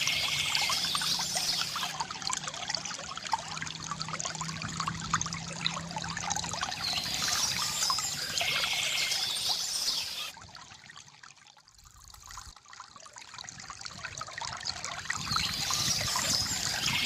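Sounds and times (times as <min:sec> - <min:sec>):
birdsong chatter: 0:00.0 - 0:01.9, 0:06.8 - 0:10.3
stream babbling over stones: 0:00.0 - 0:17.0.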